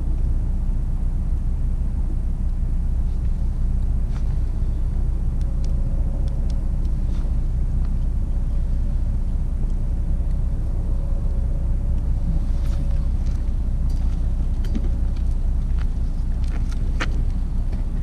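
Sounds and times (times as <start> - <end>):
faint steady hum: 0.0 - 18.0
faint crackling ticks: 5.4 - 8.2.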